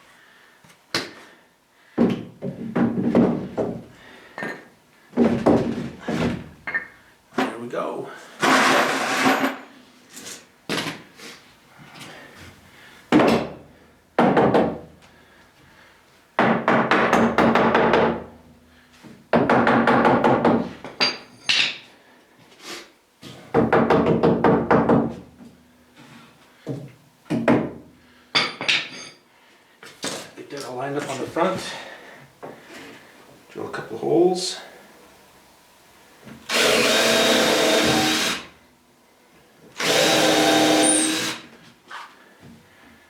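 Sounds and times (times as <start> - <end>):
cordless drill drilling into wood: 8.4 - 9.5, 36.5 - 38.5, 39.8 - 41.5.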